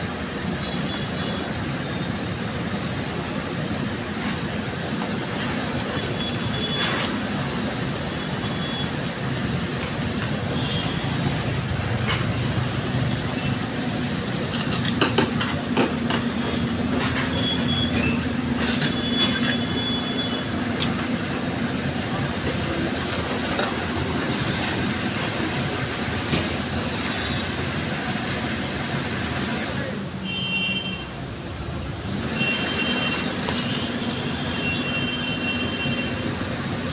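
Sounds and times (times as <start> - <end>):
excavator engine drone: 0.0 - 30.5.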